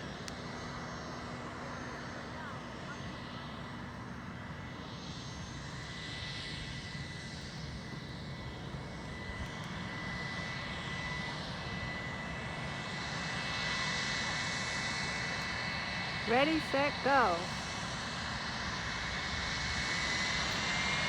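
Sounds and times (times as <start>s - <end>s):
airplane engines rumbling: 0.0s - 21.0s
thin high engine whine: 16.1s - 18.0s.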